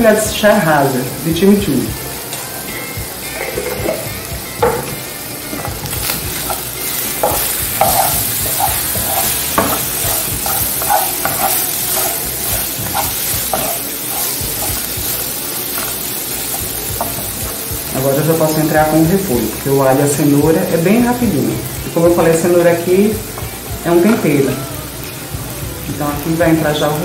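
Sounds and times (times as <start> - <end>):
sausage sizzling in oil: 0.0 - 27.0
wooden spoon stirring and scraping: 6.0 - 18.0.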